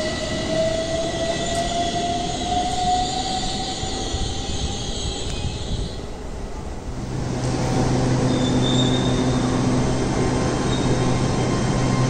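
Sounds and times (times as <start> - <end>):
train rumble and hum: 0.0 - 12.0
high wheel squeal: 8.3 - 9.6, 10.6 - 12.0.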